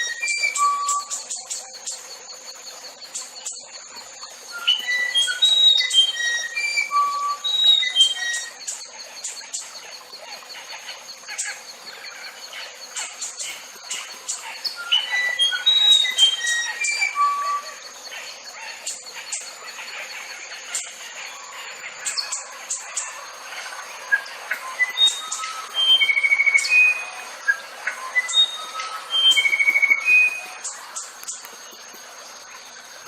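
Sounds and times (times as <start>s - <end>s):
songbird whistling: 0.0s - 2.5s, 3.1s - 9.6s, 12.9s - 19.4s, 24.0s - 31.4s.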